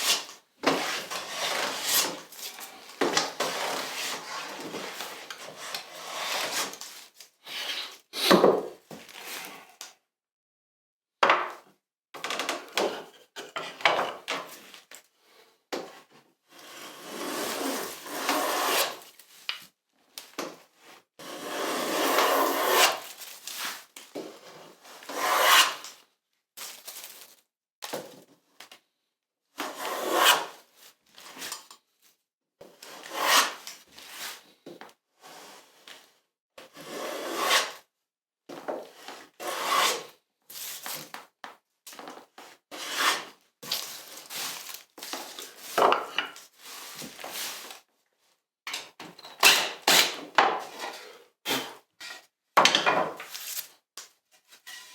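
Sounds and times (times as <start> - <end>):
hand tools scraping wood: 0.0 - 6.9, 16.6 - 19.0, 21.2 - 23.7, 25.0 - 25.8, 29.6 - 30.5, 32.8 - 33.7, 36.8 - 37.7, 39.4 - 40.0, 42.7 - 47.4, 49.6 - 52.2, 54.5 - 54.9.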